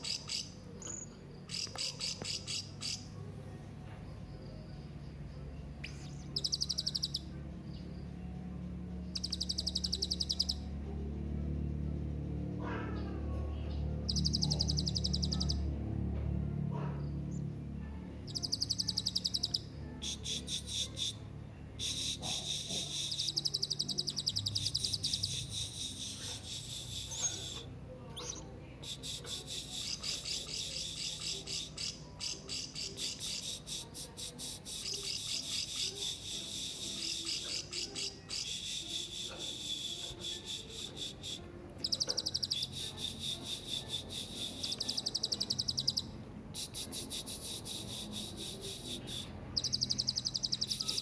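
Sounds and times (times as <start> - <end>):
parrot trilling and chirping: 0.0 - 0.6, 1.5 - 3.1, 5.8 - 7.3, 9.1 - 10.6, 14.0 - 15.7, 18.3 - 21.2, 21.8 - 28.4, 29.1 - 33.7, 34.8 - 46.2, 48.6 - 51.0
low steady hum: 0.0 - 51.0.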